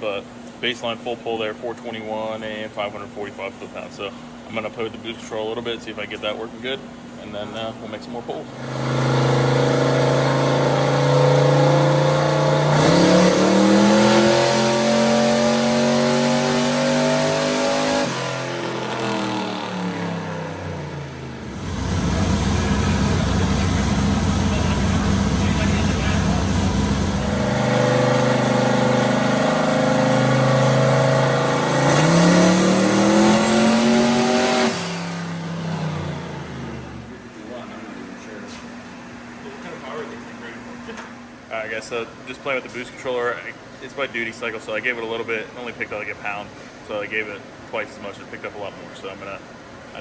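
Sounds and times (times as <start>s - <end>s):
truck engine running on dyno: 8.6s - 37.2s.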